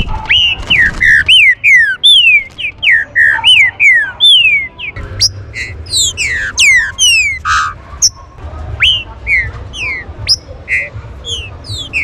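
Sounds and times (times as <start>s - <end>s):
bird singing whistled notes: 0.0s - 12.0s.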